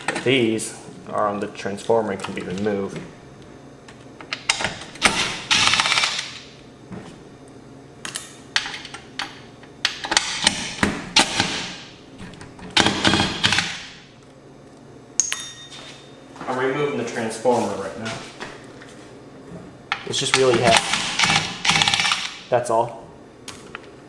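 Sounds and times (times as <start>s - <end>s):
rapid clicking and rattling: 20.6s - 22.4s.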